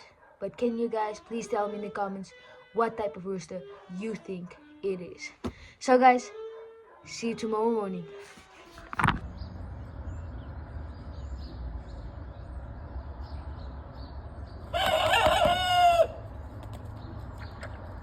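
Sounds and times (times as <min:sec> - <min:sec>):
rooster crowing: 0:14.7 - 0:16.3.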